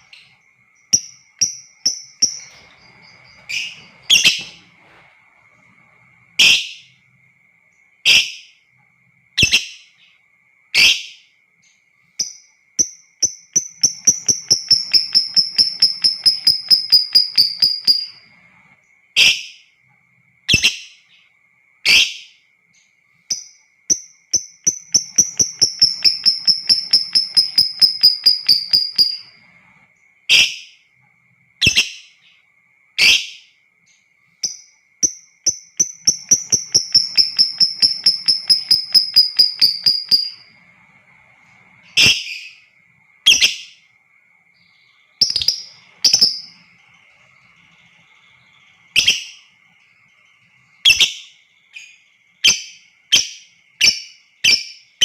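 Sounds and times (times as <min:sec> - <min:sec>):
faint steady high tone: 0:00.0 - 0:55.0
bird chattering trill: 0:13.2 - 0:18.2, 0:24.4 - 0:29.4, 0:35.0 - 0:40.6, 0:45.2 - 0:46.7.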